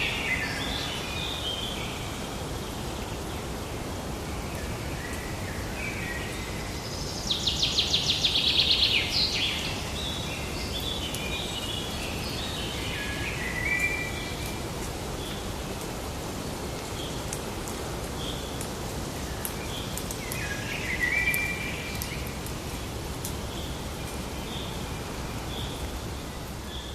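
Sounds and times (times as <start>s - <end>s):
forest background hiss: 0.0s - 26.9s.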